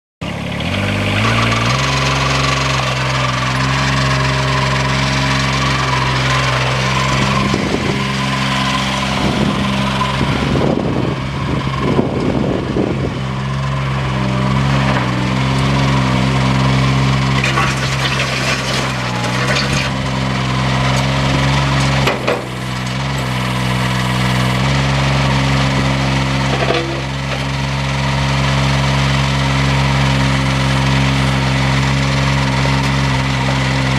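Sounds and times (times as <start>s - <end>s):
backhoe engine running: 0.2s - 33.9s
bucket scraping and crunching: 0.7s - 10.5s, 17.0s - 24.6s.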